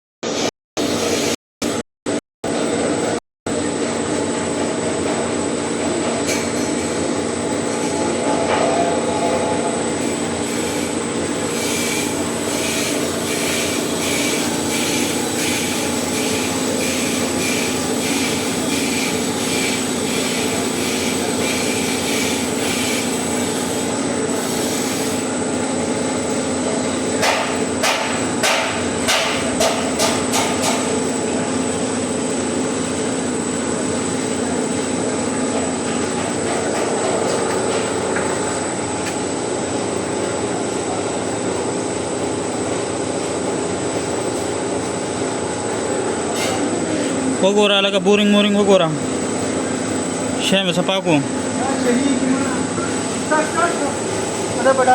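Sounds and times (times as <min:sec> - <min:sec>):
workshop machine motor hum: 0:00.2 - 0:54.9
sharp knocks: 0:27.2 - 0:31.0.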